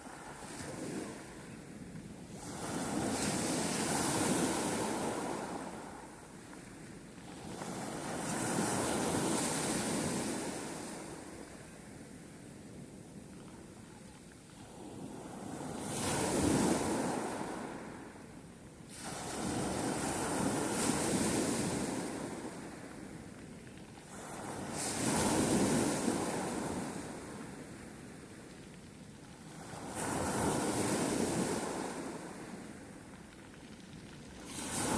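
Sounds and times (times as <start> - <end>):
sea waves rushing: 34.4 - 34.9.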